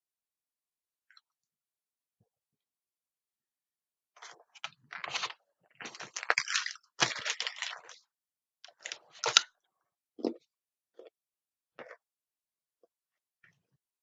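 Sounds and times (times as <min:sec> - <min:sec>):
person chewing and crunching: 0:04.2 - 0:08.0.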